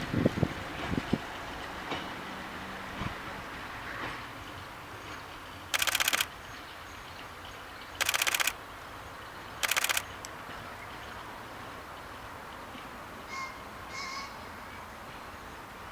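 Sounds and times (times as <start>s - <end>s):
camera shutter rapid clicks: 5.7s - 6.3s, 8.0s - 8.6s, 9.6s - 10.3s.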